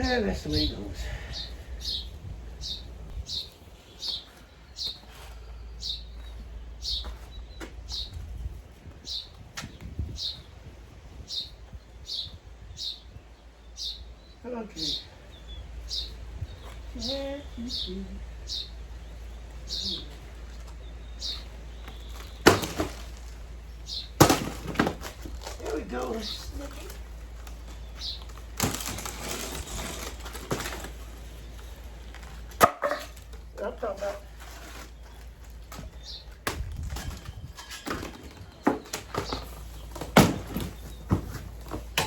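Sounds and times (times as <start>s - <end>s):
bird chirping: 0.0s - 8.2s, 11.2s - 24.3s.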